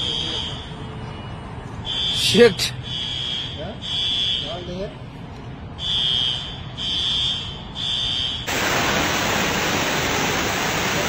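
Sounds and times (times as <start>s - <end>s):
electronic alarm beeping: 1.8s - 4.6s, 5.8s - 8.5s
rushing water: 8.5s - 11.0s.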